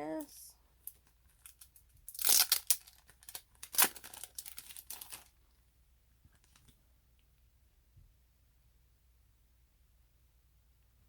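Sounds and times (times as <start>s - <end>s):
packaging crinkling: 0.8s - 5.4s.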